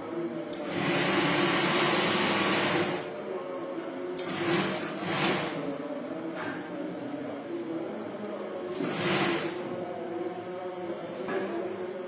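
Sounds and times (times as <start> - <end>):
overlock sewing machine running: 0.6 - 3.1, 4.2 - 5.6, 8.7 - 9.6.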